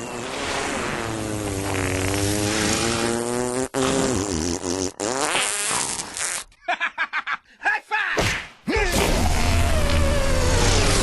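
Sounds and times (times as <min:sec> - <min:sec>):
raspy buzzing drone: 0:09.3 - 0:11.0.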